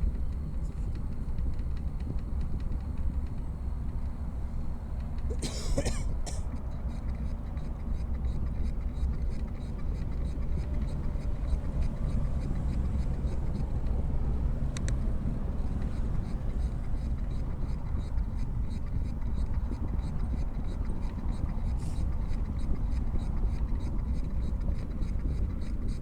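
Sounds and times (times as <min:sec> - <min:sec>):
faint regular ticking: 0:00.0 - 0:26.0
wind and road noise: 0:06.5 - 0:26.0.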